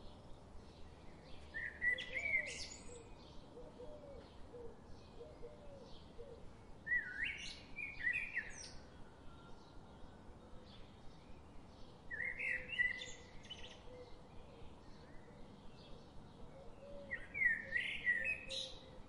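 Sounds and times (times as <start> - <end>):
birds singing: 0.1 - 19.0
faint bird chirps: 12.1 - 19.0.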